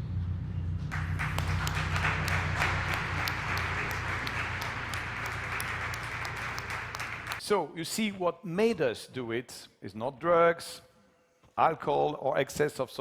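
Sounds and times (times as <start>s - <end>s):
steady low hum: 0.0s - 7.4s
audience applauding: 0.9s - 7.4s.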